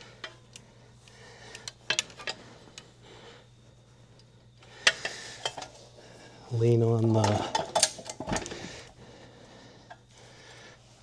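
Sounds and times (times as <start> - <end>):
faint steady hum: 0.0 - 11.0
hand tools clicking and clinking: 7.2 - 8.4.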